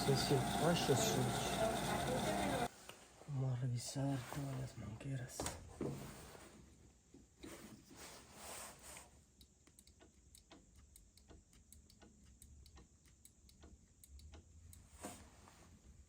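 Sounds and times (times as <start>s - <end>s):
light ticks and clicks: 9.4s - 14.9s.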